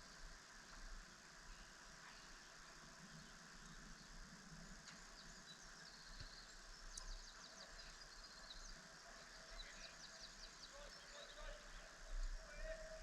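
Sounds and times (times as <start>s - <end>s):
small bird chirping: 4.9s - 12.2s.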